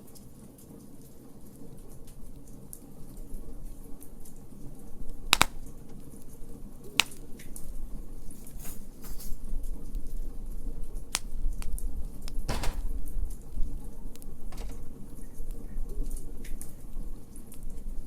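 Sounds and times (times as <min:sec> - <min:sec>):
faint fire ticks: 0:00.1 - 0:07.7
wood fire sharp pops: 0:02.1 - 0:08.8, 0:10.8 - 0:15.6.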